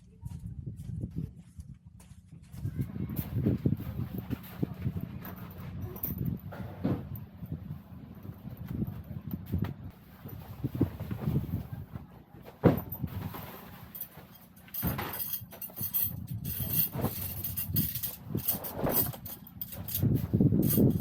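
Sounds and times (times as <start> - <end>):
wind gusting over microphone: 2.6 - 11.9, 15.8 - 21.0
handling clicks and knocks: 12.5 - 21.0.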